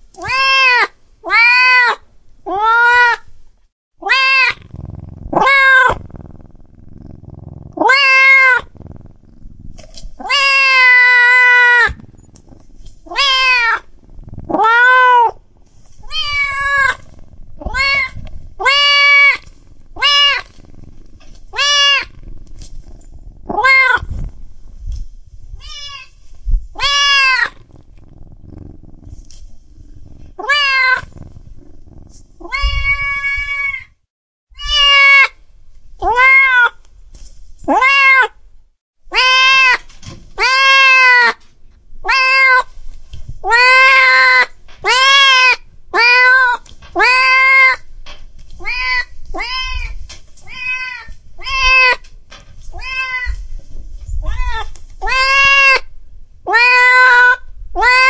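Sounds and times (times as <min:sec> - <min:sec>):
cats meowing: 0:00.2 - 0:03.2, 0:04.0 - 0:08.9, 0:10.2 - 0:15.4, 0:16.0 - 0:22.4, 0:23.5 - 0:24.2, 0:26.8 - 0:29.3, 0:30.0 - 0:31.3, 0:32.4 - 0:34.0, 0:34.6 - 0:35.3, 0:36.0 - 0:36.8, 0:39.1 - 0:39.8, 0:40.4 - 0:41.4, 0:42.1 - 0:42.7, 0:43.4 - 0:47.8, 0:48.6 - 0:52.1, 0:52.7 - 0:53.4, 0:54.2 - 0:55.9, 0:56.5 - 0:58.0.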